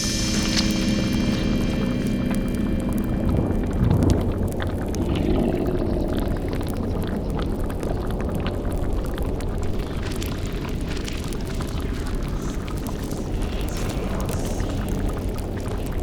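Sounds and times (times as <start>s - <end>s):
low tone sliding down: 0.0s - 6.7s
cauldron bubbling: 0.0s - 16.0s
fire crackling: 0.0s - 16.0s
steady low rumble: 0.0s - 16.0s.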